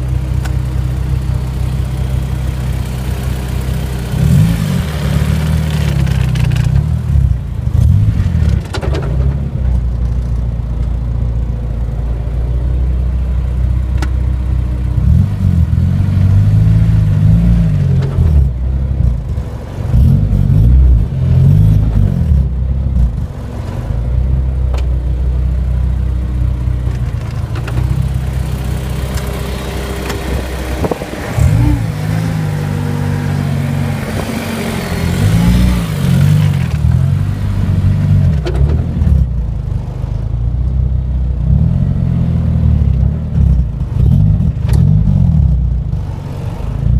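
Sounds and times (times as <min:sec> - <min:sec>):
car engine revving: 0:00.0 - 0:10.3, 0:14.0 - 0:40.2
rear differential clunks: 0:05.4 - 0:11.2, 0:25.8 - 0:39.7.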